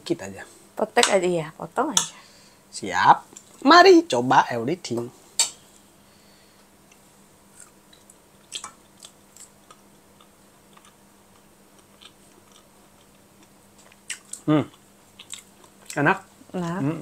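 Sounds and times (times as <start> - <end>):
low steady hum: 0.0 - 17.0
faint chewing: 6.6 - 16.8
mouth clicks and smacks: 7.6 - 11.0.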